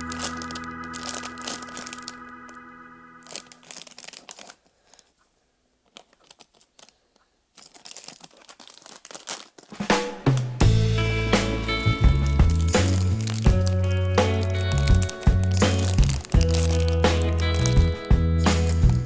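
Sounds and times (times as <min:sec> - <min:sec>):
held music chords: 0:00.0 - 0:03.6, 0:10.6 - 0:18.9
crinkling and crackling: 0:00.0 - 0:10.6, 0:11.5 - 0:19.0.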